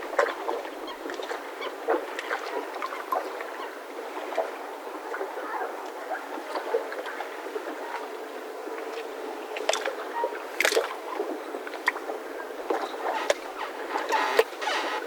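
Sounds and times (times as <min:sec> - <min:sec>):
background water wash: 0:00.0 - 0:15.0
mooring ropes creaking and squeaking: 0:12.7 - 0:15.0.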